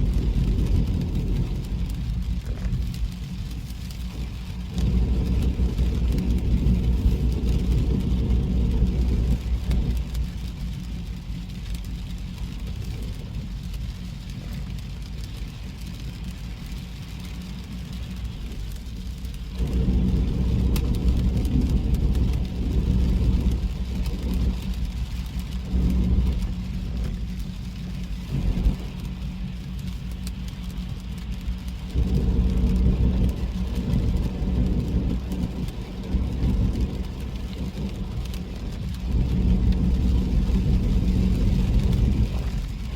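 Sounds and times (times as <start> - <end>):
car driving on wet road: 0.0 - 42.9.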